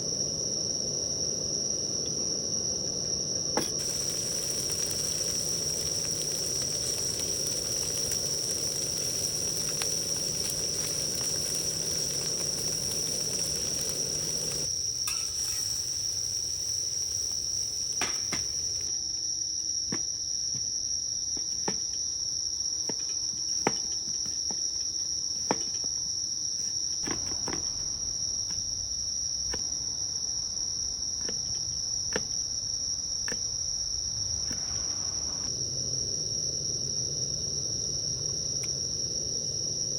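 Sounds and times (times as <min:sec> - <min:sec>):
crickets trilling: 0:00.0 - 0:39.9
low rushing noise: 0:34.0 - 0:38.4.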